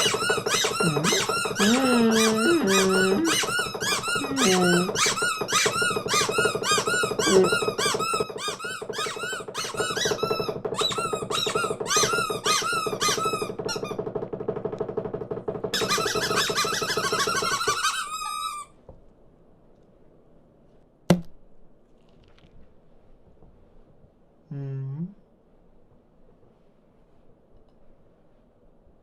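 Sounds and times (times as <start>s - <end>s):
cartoon birds squawking and chirping: 0.0s - 5.7s.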